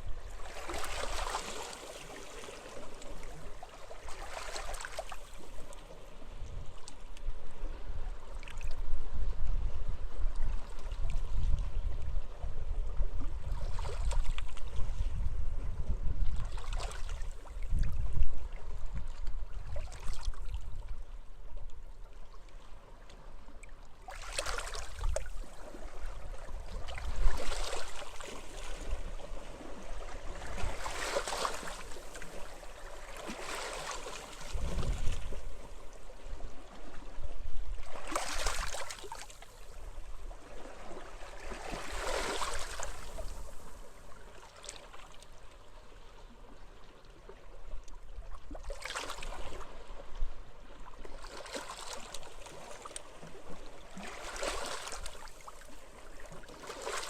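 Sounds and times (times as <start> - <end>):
low wind rumble: 34.5 - 35.7.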